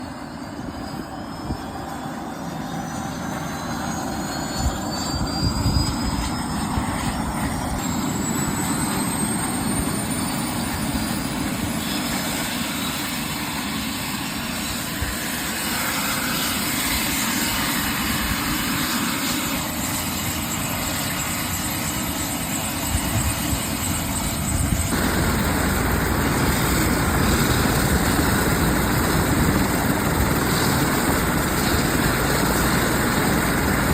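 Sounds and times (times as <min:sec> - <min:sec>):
helicopter engine and rotors: 0:00.0 - 0:33.9
high turbine whine: 0:00.0 - 0:33.9.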